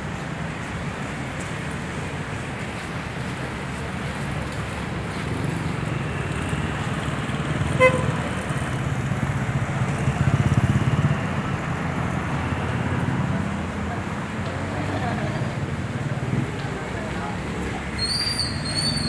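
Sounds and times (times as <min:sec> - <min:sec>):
vehicle engines running: 0:00.0 - 0:19.0
engine passing close: 0:04.7 - 0:19.0
vehicle horn toot: 0:07.8 - 0:08.2.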